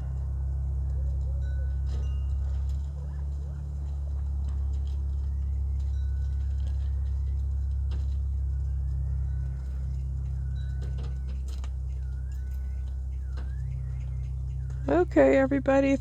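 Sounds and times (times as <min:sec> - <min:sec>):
loud low hum: 0:00.0 - 0:16.0
quail whistling calls: 0:00.0 - 0:16.0.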